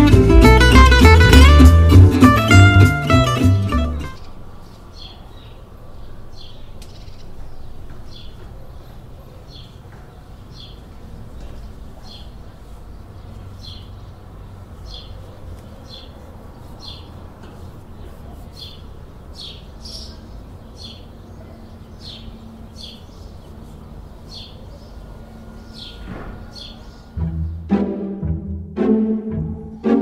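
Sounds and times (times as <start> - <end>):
bird chirping: 4.0 - 27.7.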